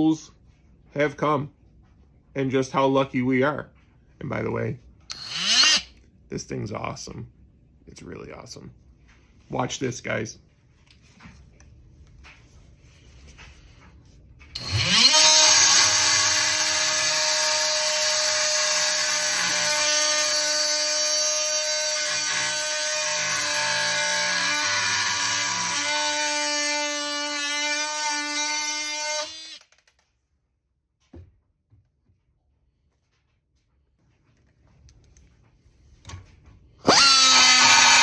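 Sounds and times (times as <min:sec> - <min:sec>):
oscillating multi-tool whining: 0:05.1 - 0:05.9, 0:14.6 - 0:29.6, 0:36.8 - 0:38.0.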